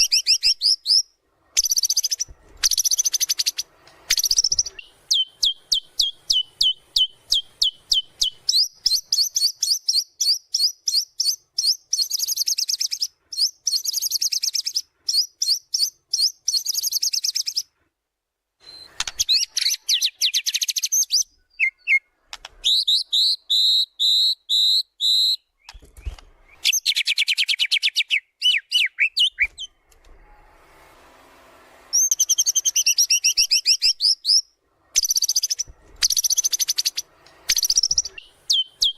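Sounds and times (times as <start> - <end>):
songbird singing: 0.0 - 17.7, 18.6 - 29.8, 31.9 - 38.9.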